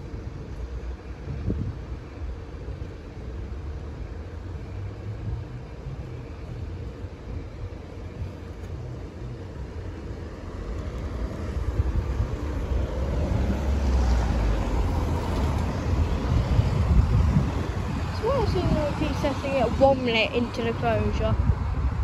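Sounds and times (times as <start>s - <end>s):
heavy vehicle passing: 3.9s - 22.0s.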